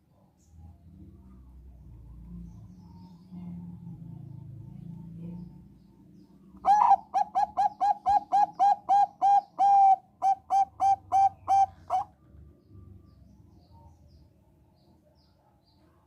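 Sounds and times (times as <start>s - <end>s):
dove cooing: 6.6s - 12.1s.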